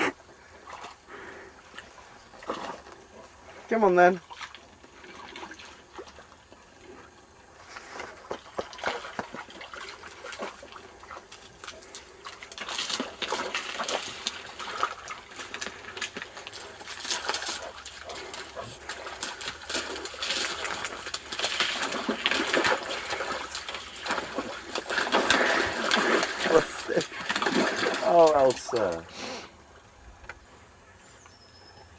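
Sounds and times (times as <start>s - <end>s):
footsteps splashing in shallow water: 4.2s - 6.3s, 8.0s - 29.0s.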